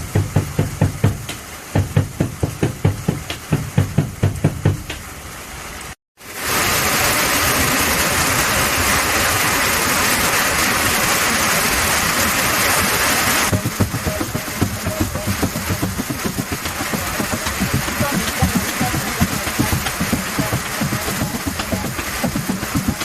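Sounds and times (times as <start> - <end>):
drum beaten in quick rhythm: 0.0 - 5.0, 13.5 - 23.0
heavy rain hissing: 0.0 - 23.0.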